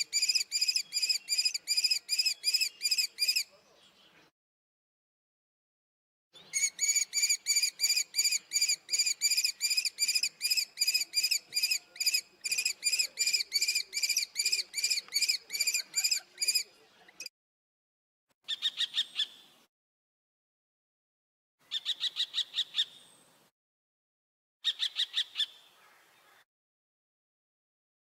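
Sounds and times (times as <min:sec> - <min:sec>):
kestrel calling kee-kee-kee: 0:06.6 - 0:16.6.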